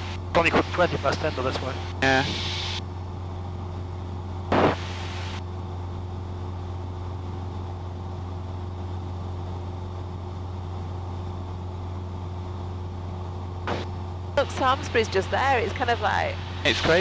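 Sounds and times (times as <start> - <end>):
airplane engine drone in cabin: 0.0 - 17.0
intercom burst with hiss: 2.0 - 2.8.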